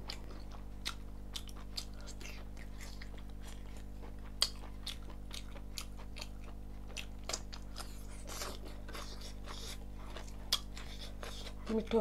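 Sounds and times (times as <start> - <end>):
faint steady hum: 0.0 - 12.0
wet chewing mouth smacks: 0.1 - 11.7.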